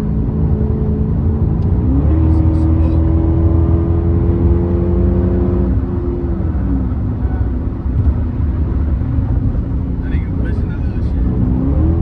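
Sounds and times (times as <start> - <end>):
car engine and exhaust droning: 0.0 - 12.0.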